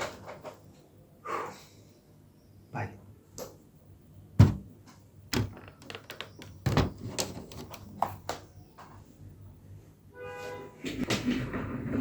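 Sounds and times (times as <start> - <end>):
knocks and thumps of handled objects: 4.4 - 8.4.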